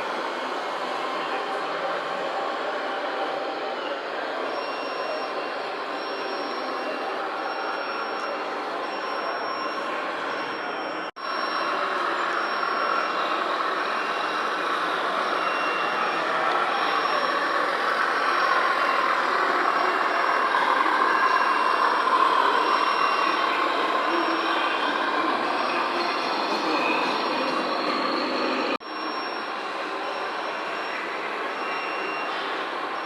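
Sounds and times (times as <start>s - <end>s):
model trucks whirring: 3.9s - 27.8s.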